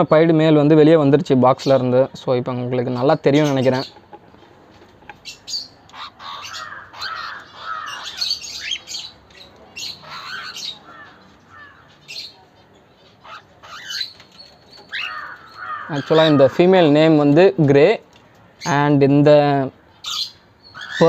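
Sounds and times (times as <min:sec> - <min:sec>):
birds chirping and squawking: 0:00.0 - 0:21.0.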